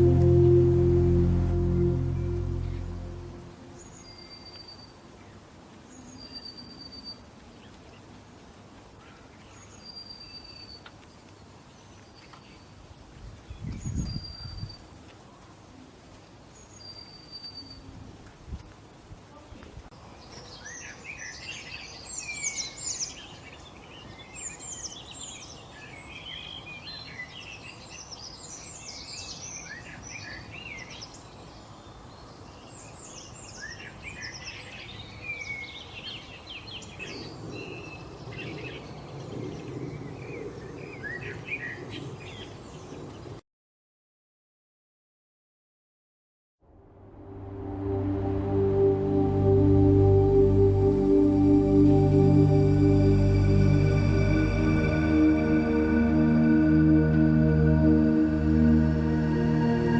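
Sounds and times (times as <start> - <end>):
high whistled bird note: 0.0 - 4.4.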